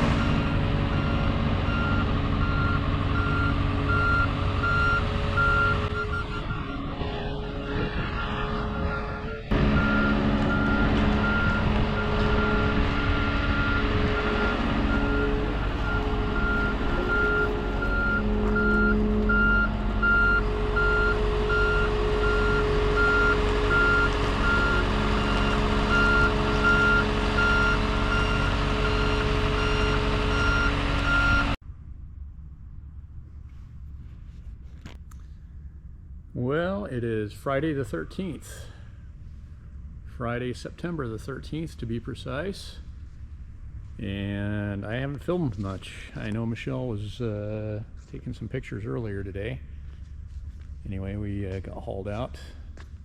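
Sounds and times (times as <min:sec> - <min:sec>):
reversing alarm beeping: 0:00.0 - 0:31.6
diesel engine running: 0:00.0 - 0:53.0.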